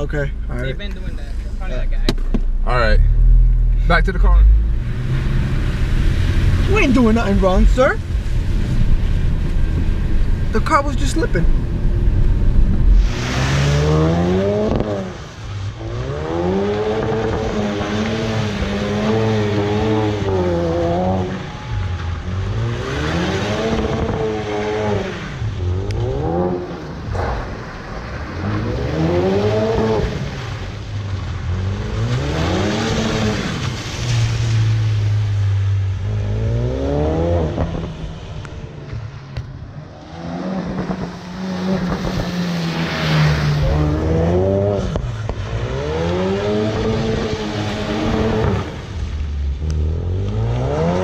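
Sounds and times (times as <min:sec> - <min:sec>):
car engine revving: 0:00.0 - 0:51.0
tyres hissing on wet pavement: 0:12.9 - 0:36.4, 0:37.7 - 0:50.4.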